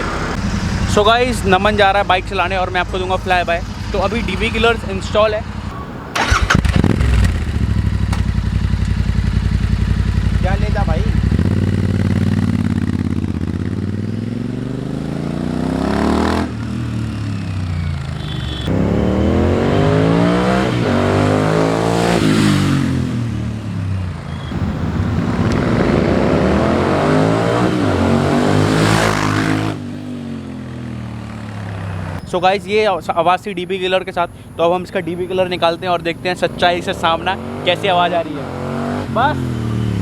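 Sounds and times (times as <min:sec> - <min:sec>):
motorcycle engine accelerating past: 0:06.2 - 0:10.4, 0:11.1 - 0:23.8, 0:24.4 - 0:32.2.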